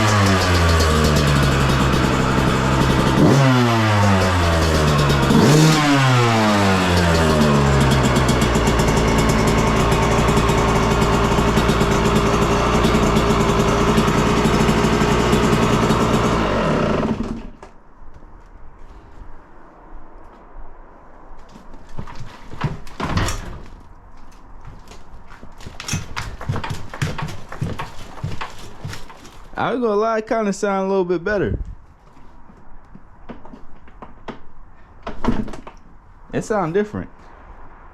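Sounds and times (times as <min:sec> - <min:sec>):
dirt bike engine revving: 0:00.0 - 0:17.6
dirt bike engine running: 0:00.0 - 0:17.6, 0:25.6 - 0:29.6.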